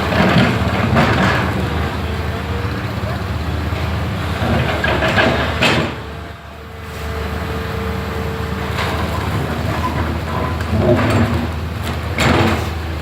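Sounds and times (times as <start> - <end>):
excavator engine humming: 0.0 - 13.0.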